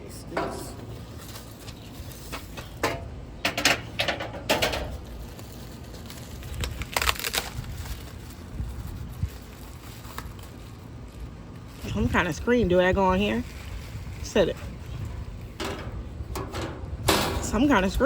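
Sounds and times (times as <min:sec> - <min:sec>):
packaging crinkling and rustling: 0:00.9 - 0:02.8, 0:04.8 - 0:12.2.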